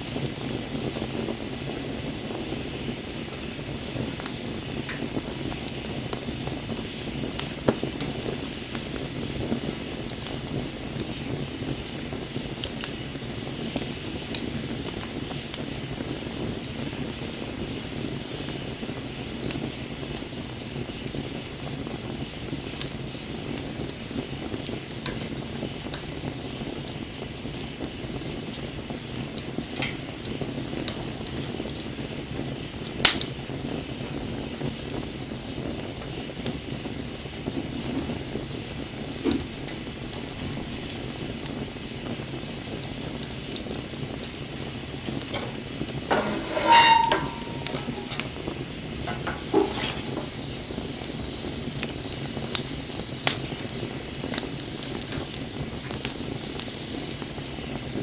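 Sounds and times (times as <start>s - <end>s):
wood bonfire crackling: 0.0s - 58.0s
fire popping sharply: 34.8s - 58.0s.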